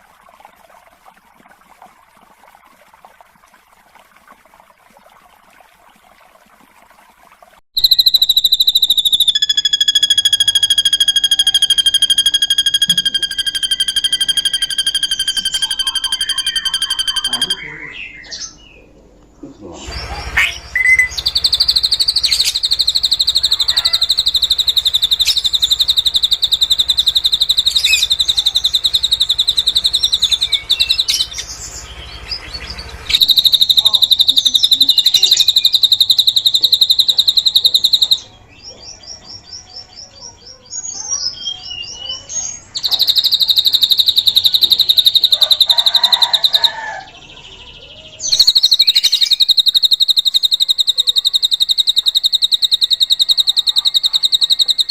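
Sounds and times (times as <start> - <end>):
bird rapid high-pitched trill: 7.8 - 18.4, 20.4 - 38.4, 40.8 - 54.9
soft varied bird chirps: 7.8 - 54.9.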